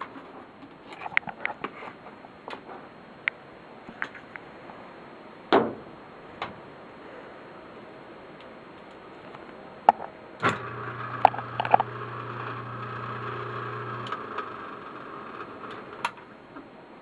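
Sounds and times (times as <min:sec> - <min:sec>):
sump pump motor humming: 0:10.4 - 0:16.4.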